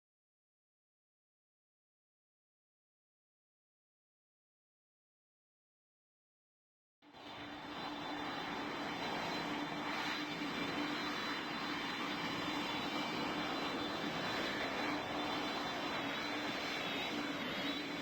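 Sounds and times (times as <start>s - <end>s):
jet engines running: 7.1s - 18.0s.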